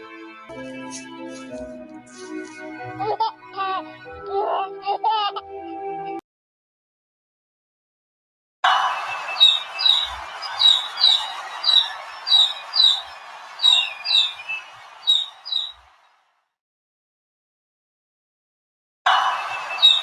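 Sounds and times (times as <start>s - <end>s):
chicks peeping: 9.3s - 15.8s, 19.7s - 20.0s.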